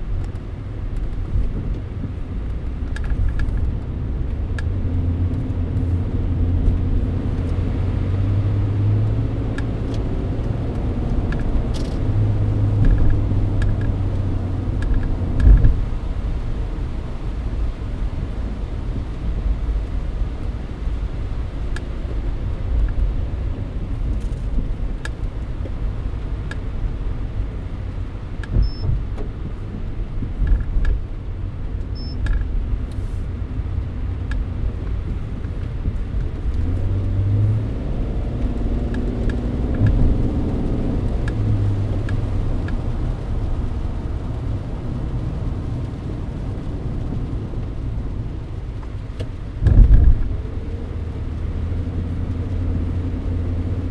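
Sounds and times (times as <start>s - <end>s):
car engine and tyres rumbling: 0.0s - 53.9s
low engine hum: 0.0s - 53.9s
faint ticks: 34.0s - 37.5s, 38.4s - 43.6s.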